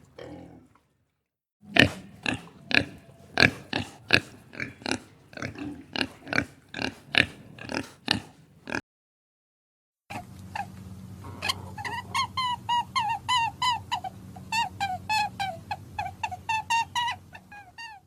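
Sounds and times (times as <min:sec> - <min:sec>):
pig oinking: 0:00.0 - 0:00.9, 0:01.6 - 0:08.8.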